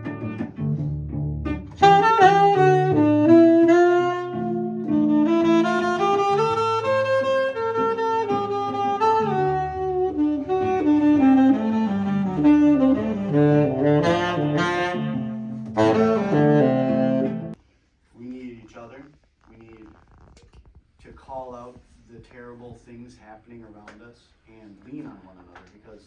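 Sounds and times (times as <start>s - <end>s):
bass accompaniment: 0.0s - 17.6s
lead melody instrument: 1.4s - 17.6s.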